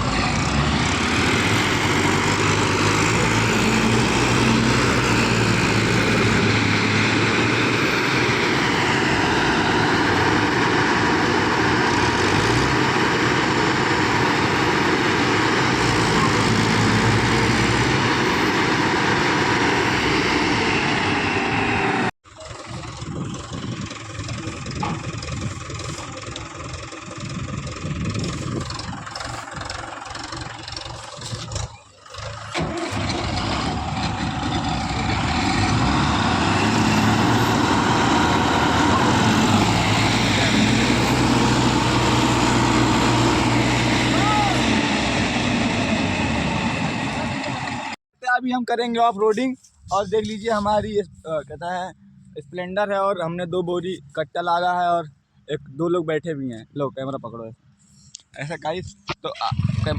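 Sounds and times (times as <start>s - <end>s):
diesel engine running loudly: 0.0s - 48.0s, 59.5s - 59.9s
quieter engine: 0.0s - 48.0s.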